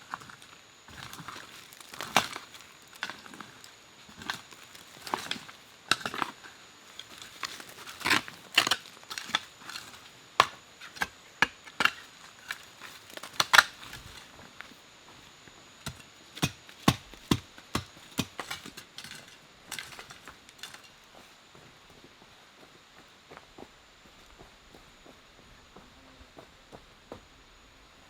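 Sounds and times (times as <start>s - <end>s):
wood being chopped: 8.0s - 14.2s, 15.8s - 18.9s.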